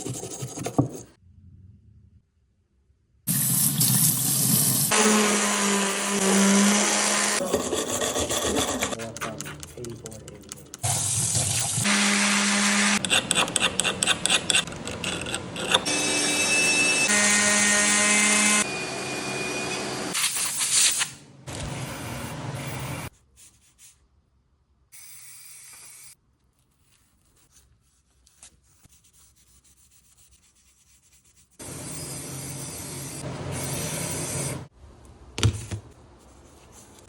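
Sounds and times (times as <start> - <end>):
power tool sanding: 4.7 - 9.0, 11.8 - 13.1, 17.1 - 19.9.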